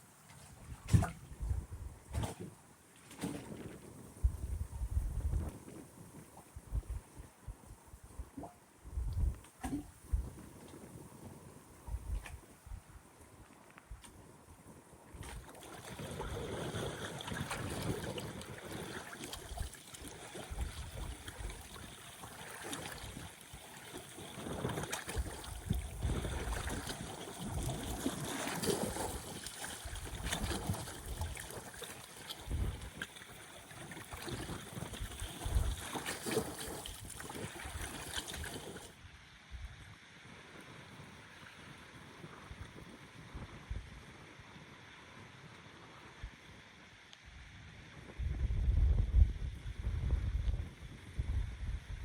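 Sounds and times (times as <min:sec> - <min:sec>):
gusty wind buffeting microphone: 0:00.8 - 0:02.3, 0:03.9 - 0:13.0, 0:48.0 - 0:52.0
waves lapping at shore: 0:15.1 - 0:39.0.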